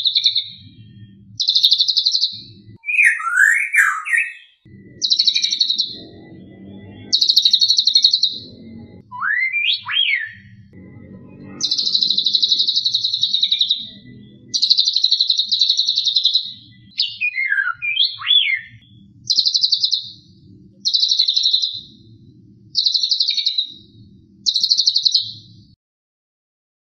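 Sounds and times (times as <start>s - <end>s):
sweeping bird whistles: 1.4s - 5.9s, 9.1s - 10.4s, 14.5s - 20.0s, 20.8s - 21.7s, 22.8s - 23.8s.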